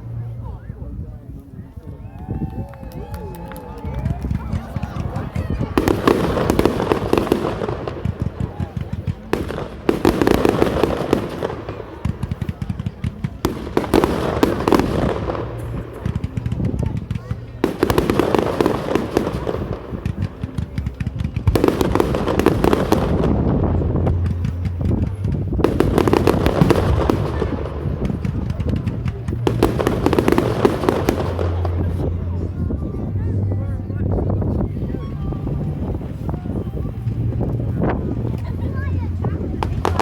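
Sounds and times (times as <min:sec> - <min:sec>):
low rumble: 0:00.0 - 0:40.0
fireworks crackling and popping: 0:01.4 - 0:40.0
loud firework bangs: 0:04.0 - 0:32.8.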